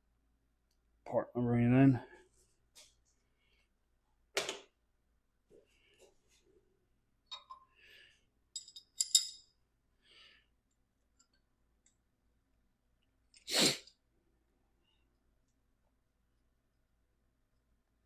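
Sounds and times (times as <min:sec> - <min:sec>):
small metal parts clinking: 0:08.5 - 0:09.5
person sneezing: 0:13.4 - 0:13.9.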